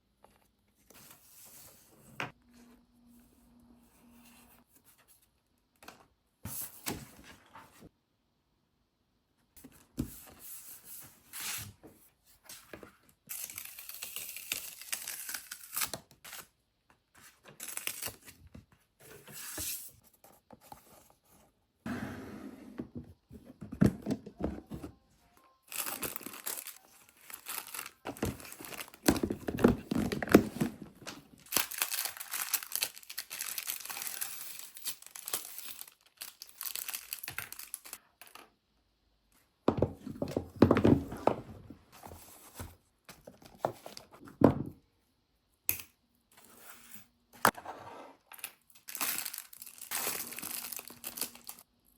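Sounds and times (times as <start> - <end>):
paper or plastic tearing and crinkling: 31.4 - 34.3, 48.9 - 51.6.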